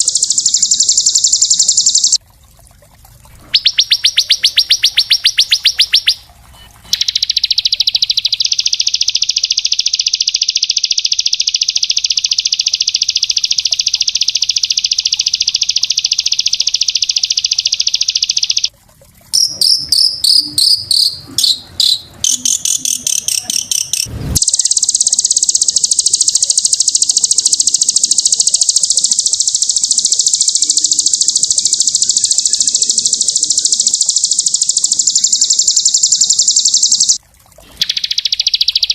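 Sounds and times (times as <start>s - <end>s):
songbirds trilling: 0.0s - 2.2s, 3.4s - 8.8s, 20.1s - 38.9s.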